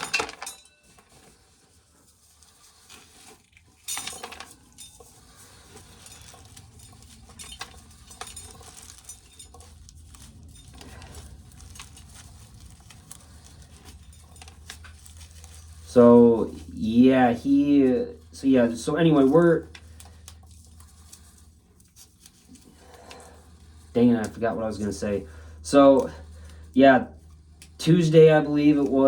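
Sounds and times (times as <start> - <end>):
loud rattle: 0.0 - 0.6
corn kernels pattering and clicking: 0.0 - 29.0
faint low hum: 0.0 - 29.0.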